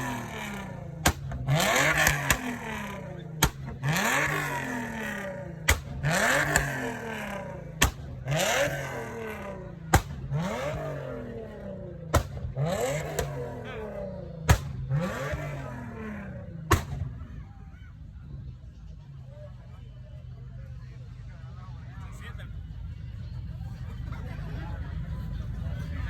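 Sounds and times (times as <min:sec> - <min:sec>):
exhaust crack: 0:00.0 - 0:17.6
car engine revving: 0:00.0 - 0:17.7.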